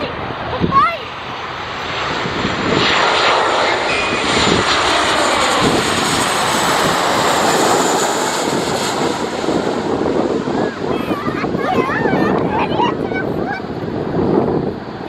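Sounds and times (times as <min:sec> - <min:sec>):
jet engines rushing and whining: 0:00.0 - 0:15.0.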